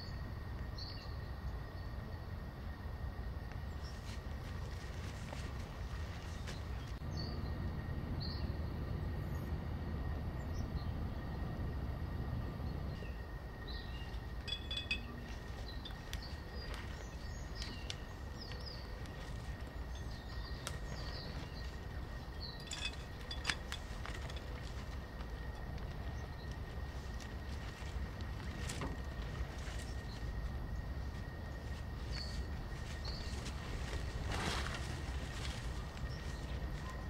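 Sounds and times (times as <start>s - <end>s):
steady low rumble: 0.0s - 37.0s
thin steady tone: 13.0s - 28.2s.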